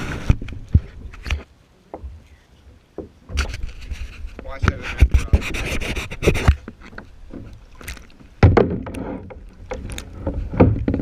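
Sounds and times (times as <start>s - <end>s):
water splashing: 0.0s - 11.0s
paddle knocking on kayak: 2.9s - 3.5s, 8.4s - 11.0s.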